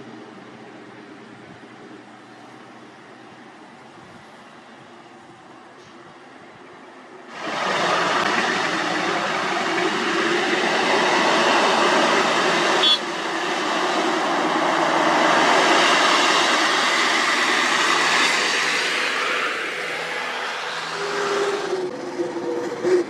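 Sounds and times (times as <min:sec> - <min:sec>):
paving machinery rumbling and clattering: 0:00.0 - 0:23.0.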